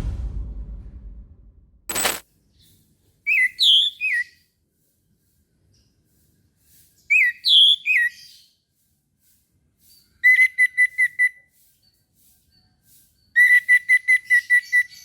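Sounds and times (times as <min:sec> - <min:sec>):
thrush whistling song: 0:03.3 - 0:04.3.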